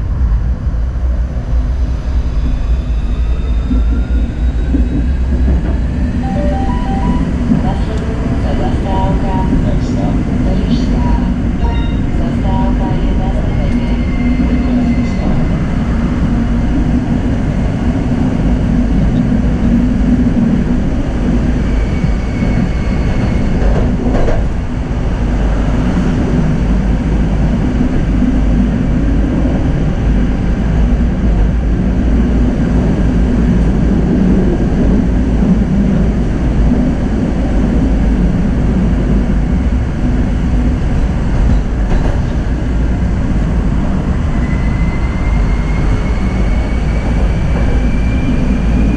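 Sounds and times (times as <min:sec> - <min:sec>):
tram wheels rumbling on rails: 0:00.0 - 0:48.9.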